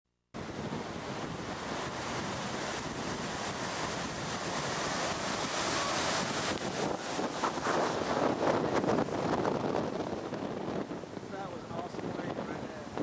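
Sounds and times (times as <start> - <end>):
heavy surf: 0.4 - 13.0
wind buffeting microphone: 0.4 - 13.0.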